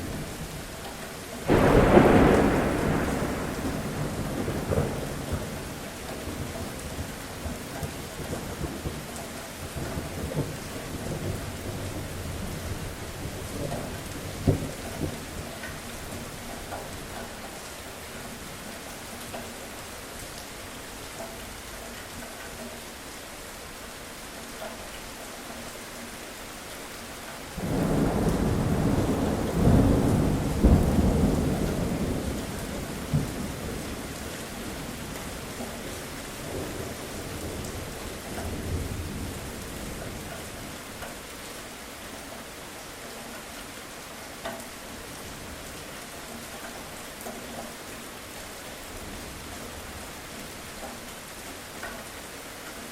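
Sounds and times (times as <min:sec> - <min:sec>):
steady rain falling: 0:00.0 - 0:52.9
rolling thunder: 0:01.5 - 0:09.1, 0:27.6 - 0:40.3.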